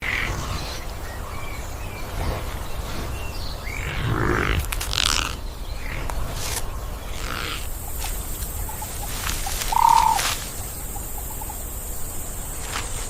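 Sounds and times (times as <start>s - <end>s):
steady low rumble: 0.0s - 9.6s
birds chirping and calling: 0.0s - 13.0s
harsh bird call: 9.6s - 10.4s.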